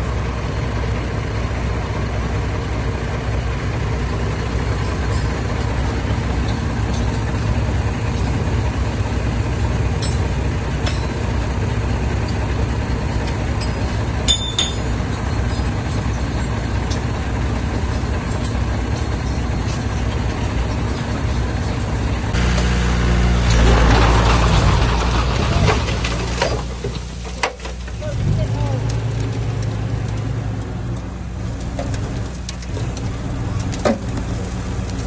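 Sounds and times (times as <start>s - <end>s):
heavy diesel engine running: 0.0s - 35.0s
rough grinding noise: 3.9s - 35.0s
metallic clinks: 13.6s - 15.0s.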